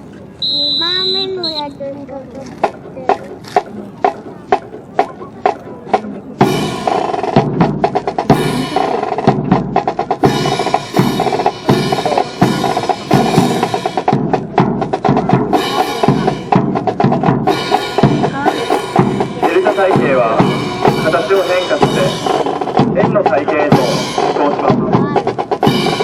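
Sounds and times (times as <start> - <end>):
snare drum strokes and rolls: 2.4 - 26.0.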